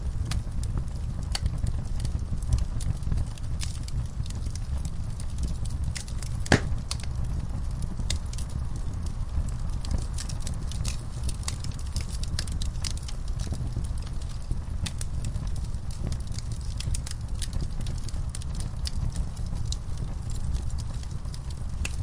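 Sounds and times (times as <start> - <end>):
low rumble of fire: 0.0 - 22.0
wood fire crackling: 0.0 - 22.0
loud pop: 6.5 - 6.8.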